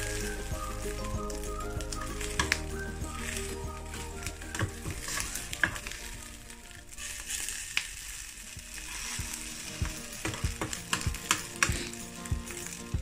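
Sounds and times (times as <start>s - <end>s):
patties sizzling in oil: 0.0s - 13.0s
spatula scraping pan: 8.7s - 12.9s.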